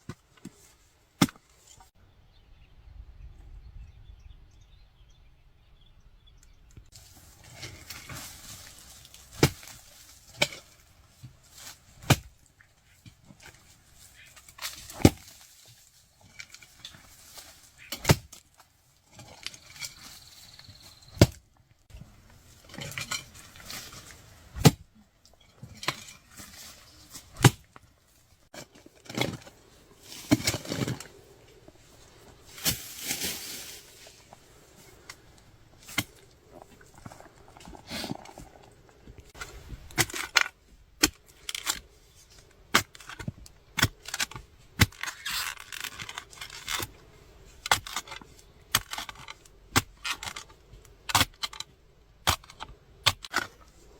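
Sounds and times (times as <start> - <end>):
digging tool striking wood and earth: 1.2 - 1.8, 6.9 - 27.9, 28.5 - 31.6, 32.3 - 34.2, 35.0 - 36.4, 39.3 - 53.8
scraping and rustling: 6.9 - 12.1, 25.3 - 40.5.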